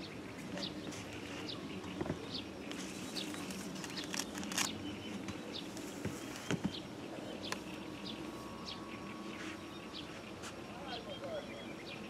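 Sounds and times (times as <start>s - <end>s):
birds chirping: 0.0s - 12.0s
low steady hum: 0.0s - 12.0s
clicks and rustles: 0.6s - 6.8s.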